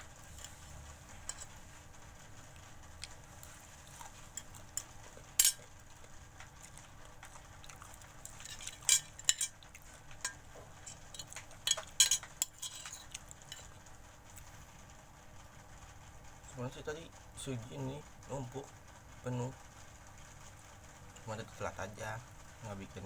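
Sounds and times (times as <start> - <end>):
utensil clinking against a plate: 0.1 - 1.6, 4.0 - 5.8, 6.6 - 13.8.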